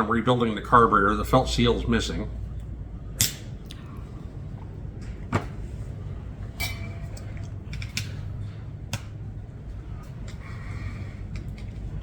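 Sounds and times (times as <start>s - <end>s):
steady low hum: 0.0s - 12.0s
metallic clink: 6.5s - 8.3s.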